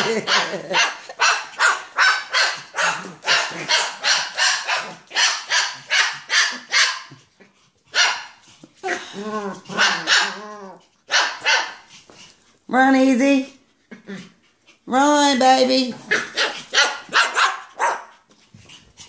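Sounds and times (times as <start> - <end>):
dog barking: 0.0 - 7.1, 7.9 - 8.4, 9.7 - 10.4, 11.1 - 11.8, 16.1 - 18.1.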